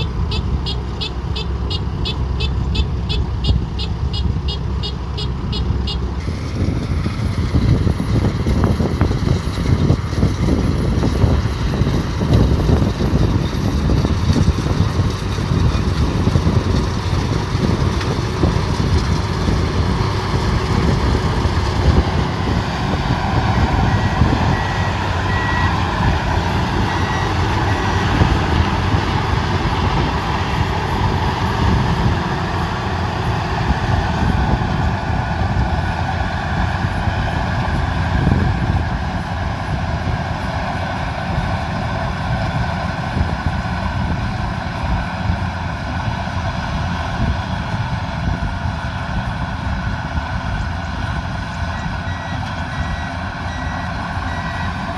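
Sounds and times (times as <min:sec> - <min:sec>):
combine harvester engine running: 0:00.0 - 0:54.9
reversing alarm beeping: 0:18.4 - 0:32.1, 0:51.6 - 0:54.9.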